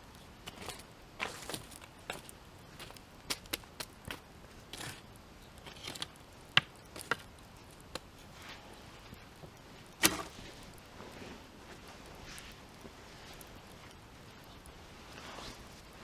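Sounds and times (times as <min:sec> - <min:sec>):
soft rustling: 0:04.2 - 0:16.0.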